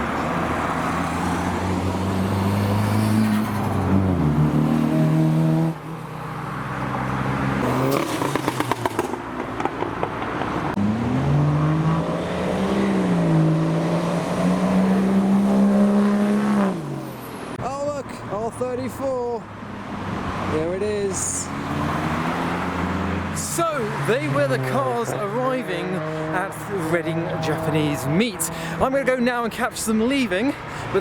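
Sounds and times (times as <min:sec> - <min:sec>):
car engines accelerating past: 0:00.0 - 0:17.4, 0:21.4 - 0:28.8.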